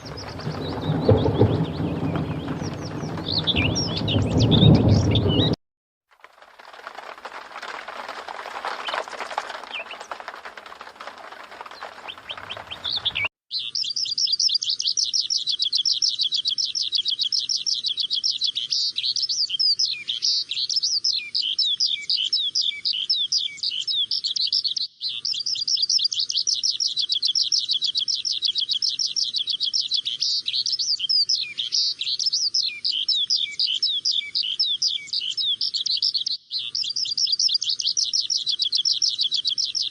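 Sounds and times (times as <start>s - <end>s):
small birds chirping: 0.0s - 5.6s, 8.8s - 39.9s
steady rushing noise: 0.0s - 5.6s.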